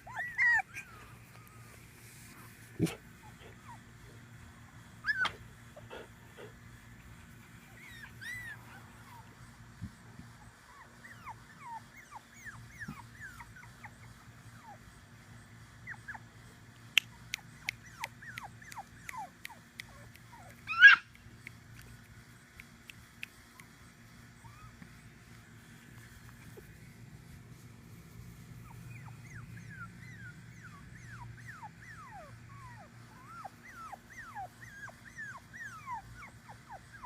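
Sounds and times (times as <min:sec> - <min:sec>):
puppy yelp: 0:00.0 - 0:01.5, 0:05.0 - 0:05.4, 0:07.7 - 0:09.2, 0:17.3 - 0:21.2, 0:28.6 - 0:37.0
puppies whimpering and squeaking: 0:00.0 - 0:02.4, 0:05.0 - 0:06.5, 0:07.1 - 0:09.3, 0:10.5 - 0:14.8, 0:17.2 - 0:21.2, 0:24.2 - 0:25.2, 0:28.1 - 0:37.0.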